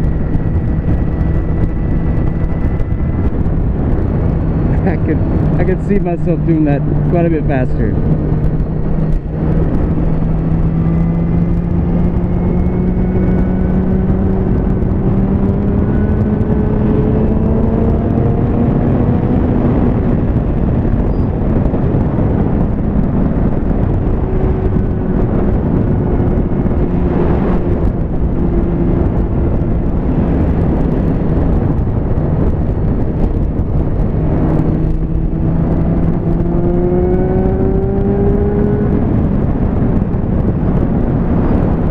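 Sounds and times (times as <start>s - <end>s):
rushing noise: 0.0s - 10.8s
motorcycle engine running hard: 0.0s - 41.9s.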